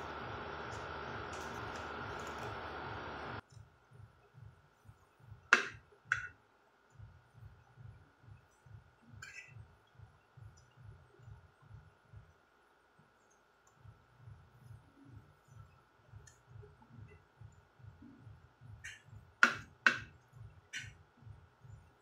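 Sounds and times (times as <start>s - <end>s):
steady hiss: 0.0s - 3.4s.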